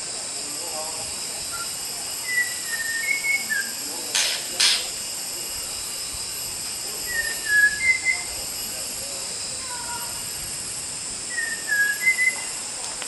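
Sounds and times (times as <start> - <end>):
forest insects hissing: 0.0 - 13.0
bird whistling clear notes: 1.5 - 3.8, 7.1 - 8.3, 11.3 - 12.6.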